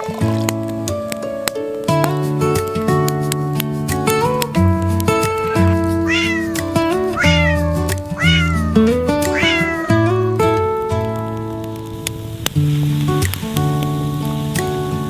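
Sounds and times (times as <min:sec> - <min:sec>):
cat meowing: 0:05.4 - 0:10.1.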